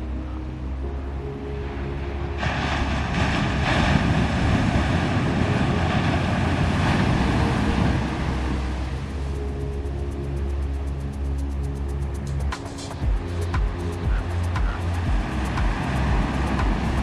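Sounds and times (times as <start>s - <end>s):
ocean surf rushing: 1.4s - 9.8s, 12.0s - 17.0s.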